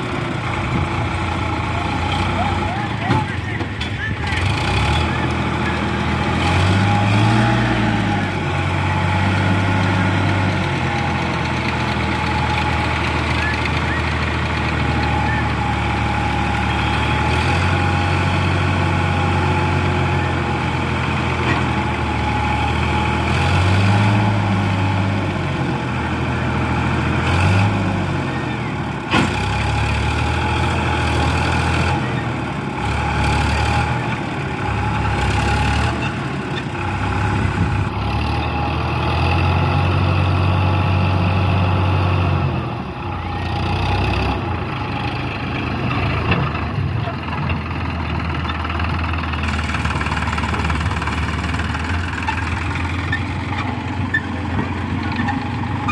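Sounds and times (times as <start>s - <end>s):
diesel engines revving: 0.0s - 55.9s.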